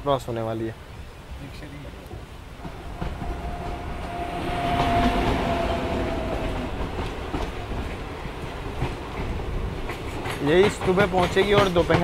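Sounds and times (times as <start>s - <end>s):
train rumbling over rails: 2.2s - 12.0s
thin high tone: 2.6s - 8.0s.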